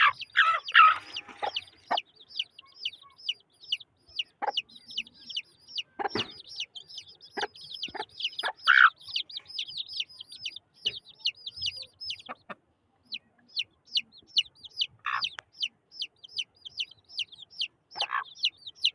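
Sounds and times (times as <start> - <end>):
chicks peeping: 0.0 - 18.9
lower louder chick calls: 0.0 - 18.9.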